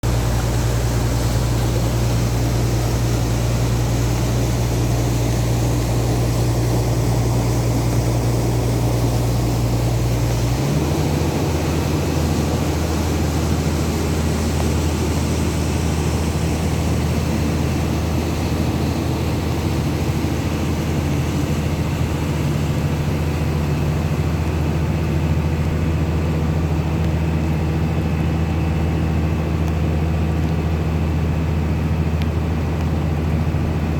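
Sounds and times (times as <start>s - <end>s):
heavy rain hissing: 0.0s - 33.8s
vehicle engine humming: 0.0s - 33.9s.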